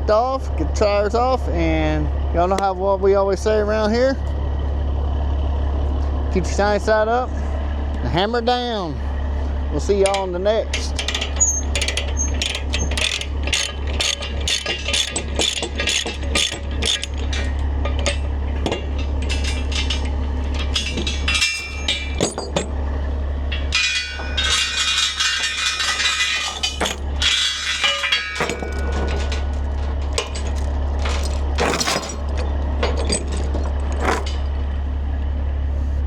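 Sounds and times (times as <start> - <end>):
steady low hum: 0.0 - 36.0
metal clinking and rattling: 10.0 - 34.8.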